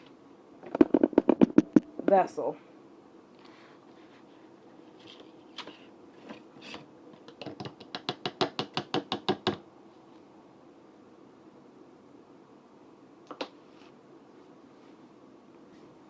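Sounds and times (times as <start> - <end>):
knocks on a container: 0.7 - 2.2
sharp taps on a container: 0.7 - 2.2.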